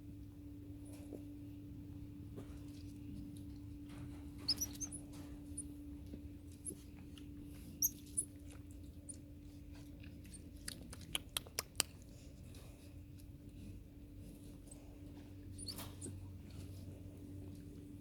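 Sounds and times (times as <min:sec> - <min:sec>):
steady low hum: 0:00.0 - 0:18.0
small animal squeaking: 0:04.3 - 0:05.8, 0:07.7 - 0:08.4, 0:15.5 - 0:16.2.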